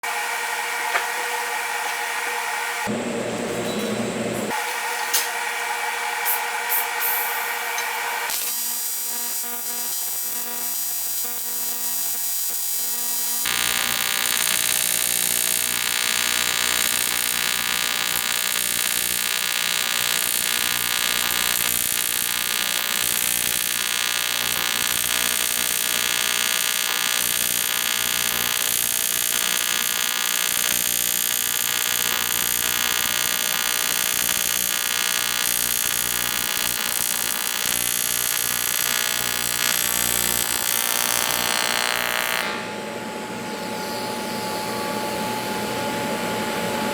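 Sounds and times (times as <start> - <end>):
welding arc buzzing: 6.2 - 42.8.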